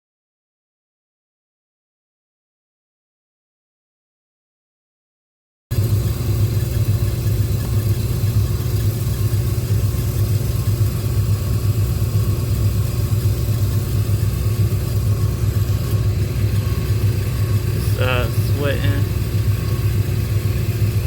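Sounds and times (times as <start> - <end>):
chiller low drone: 5.7 - 21.0.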